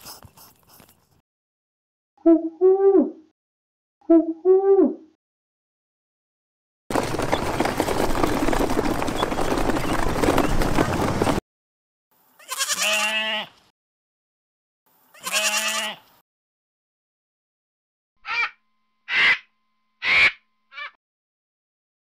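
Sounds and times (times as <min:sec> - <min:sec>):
sheep bleating: 0:12.4 - 0:13.6, 0:15.1 - 0:16.1.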